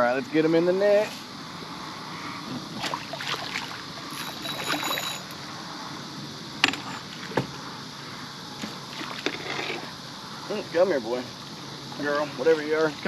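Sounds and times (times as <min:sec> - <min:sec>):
water splashing beside a boat: 0:02.7 - 0:05.1, 0:08.6 - 0:09.6.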